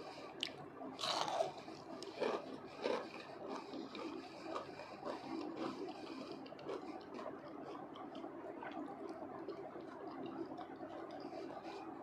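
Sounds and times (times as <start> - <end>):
crunchy chewing of fried potatoes: 0.0 - 12.0.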